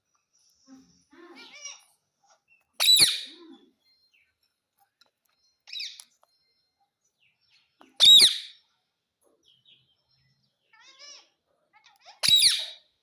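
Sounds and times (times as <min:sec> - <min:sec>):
parakeet calling: 0:01.2 - 0:03.4, 0:05.6 - 0:06.1, 0:08.0 - 0:08.7, 0:10.6 - 0:13.0.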